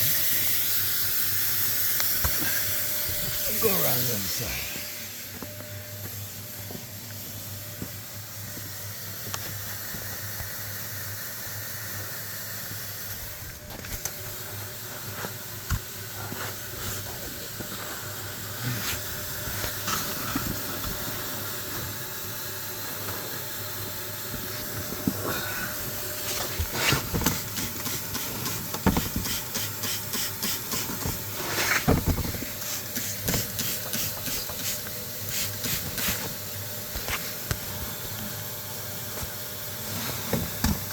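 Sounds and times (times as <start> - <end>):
steady exhaust hiss: 0.0 - 40.9
exhaust ticks and puffs: 4.9 - 10.9.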